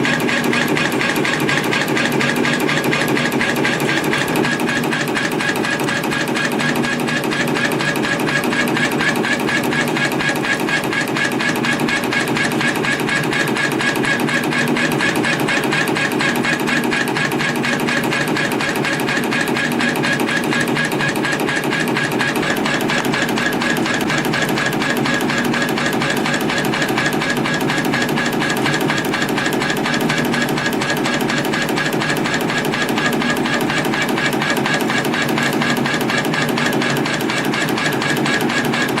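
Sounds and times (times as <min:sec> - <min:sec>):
spring coiling machine clattering: 0:12.0 - 0:39.0.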